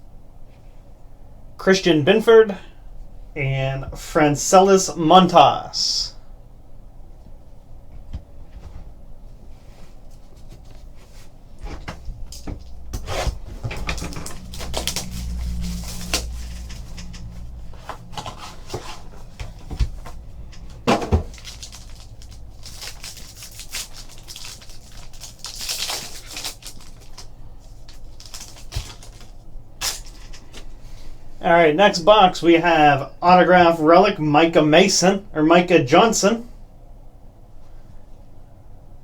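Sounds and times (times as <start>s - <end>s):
cardboard and wrapping rustling: 8.0s - 31.1s.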